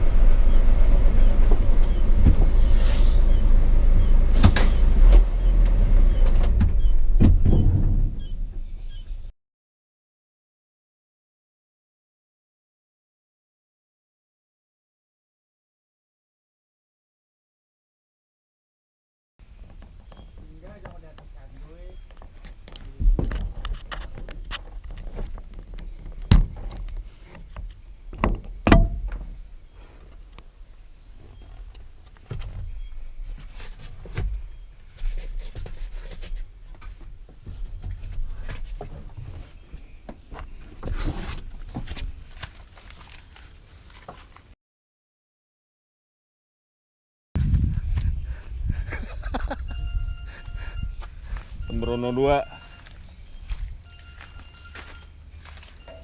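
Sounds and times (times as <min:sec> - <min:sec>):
truck diesel engine rumbling: 0:00.0 - 0:09.2, 0:47.8 - 0:56.0
truck cab rattling and knocking: 0:00.5 - 0:02.7, 0:04.3 - 0:08.7, 0:23.0 - 0:29.5
heavy thumps: 0:06.5 - 0:08.6, 0:22.3 - 0:29.5.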